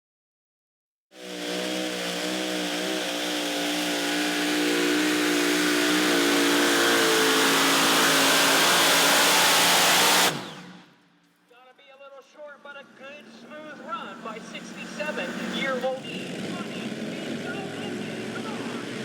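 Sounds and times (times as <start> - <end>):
tractor engine at full throttle: 1.2 - 10.9, 12.9 - 19.0.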